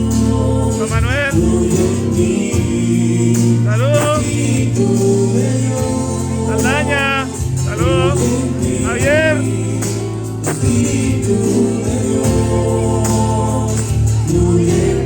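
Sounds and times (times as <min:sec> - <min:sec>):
voices singing: 0:00.0 - 0:15.0.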